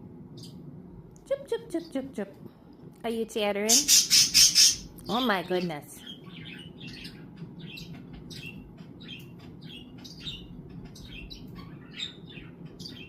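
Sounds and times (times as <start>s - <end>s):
budgies chirping: 3.7s - 13.0s.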